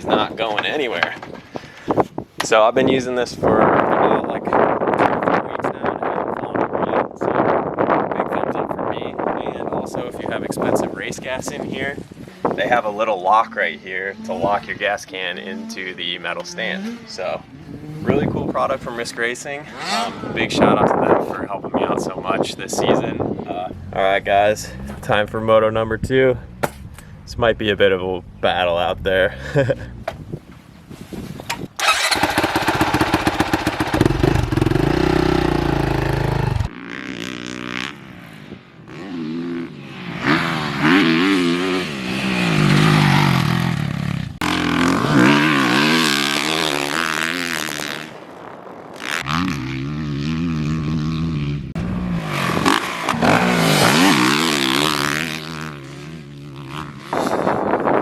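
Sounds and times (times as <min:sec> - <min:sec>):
motocross bike engine revving: 0:10.5 - 0:20.6, 0:31.8 - 0:58.0.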